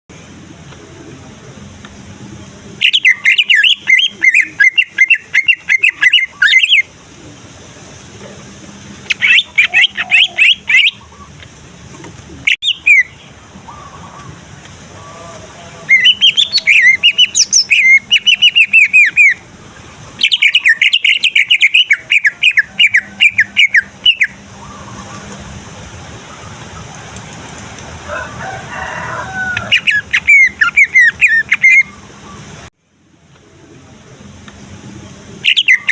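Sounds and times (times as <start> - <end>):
bird singing chattering whistles: 2.8 - 6.9, 9.1 - 11.2, 12.5 - 13.2, 15.9 - 19.4, 20.2 - 25.0, 29.7 - 32.4, 35.4 - 35.9.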